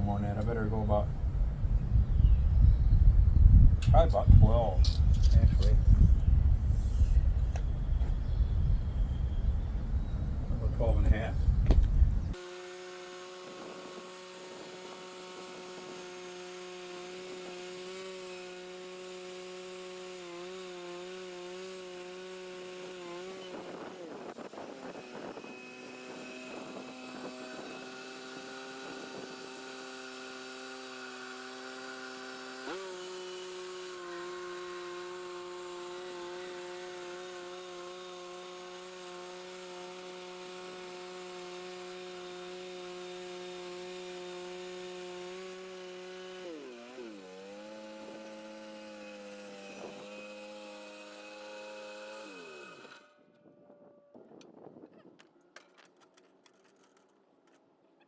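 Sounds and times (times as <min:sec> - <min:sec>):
band sawmill motor running: 0:11.0 - 0:53.2
saw blade scraping into log: 0:12.3 - 0:53.2.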